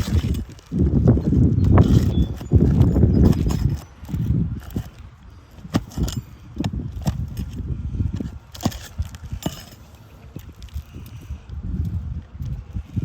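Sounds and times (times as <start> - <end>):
hand tools clicking and knocking: 0.0 - 5.0, 5.6 - 7.6, 8.2 - 10.6.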